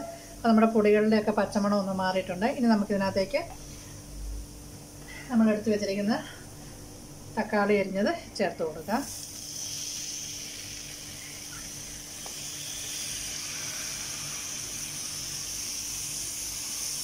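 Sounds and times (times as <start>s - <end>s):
food sizzling in a frying pan: 8.8s - 17.0s.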